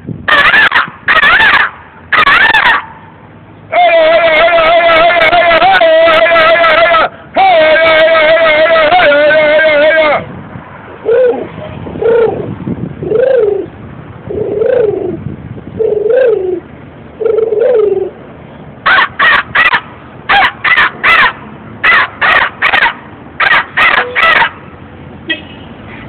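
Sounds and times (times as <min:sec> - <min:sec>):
man imitating loud caws: 0:03.7 - 0:10.2
man imitating cooing calls: 0:03.7 - 0:10.3, 0:11.0 - 0:15.2, 0:15.8 - 0:18.2.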